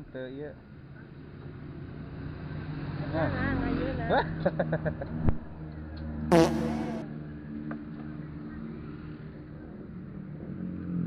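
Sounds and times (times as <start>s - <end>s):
brief loud burst: 6.3s - 7.0s
engine humming: 6.3s - 7.1s.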